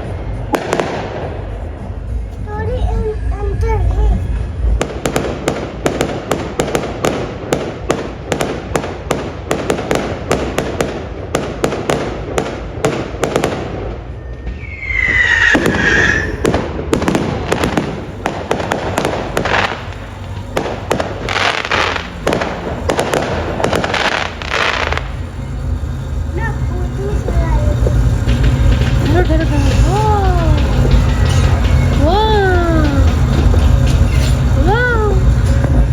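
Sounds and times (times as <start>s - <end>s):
fireworks crackling bangs: 0.0s - 2.8s, 3.6s - 35.9s
high whistle falling in pitch: 14.2s - 16.6s.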